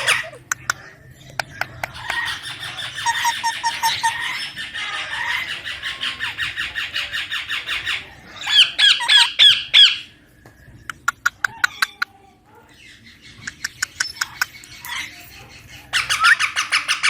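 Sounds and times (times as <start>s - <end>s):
parakeet squawking: 0.0s - 10.2s, 12.8s - 17.0s.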